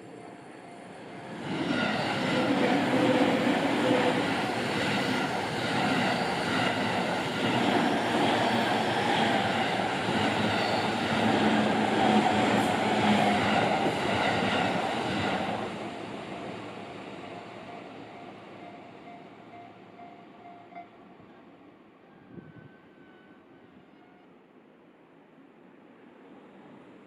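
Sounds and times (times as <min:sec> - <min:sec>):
train wheels rolling on rails: 0:01.2 - 0:19.7.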